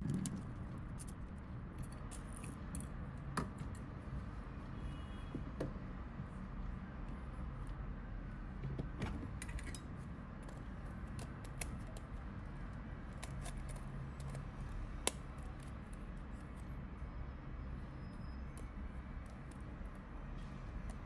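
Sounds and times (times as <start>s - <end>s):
small clicks and taps of tools: 9.4s - 12.2s.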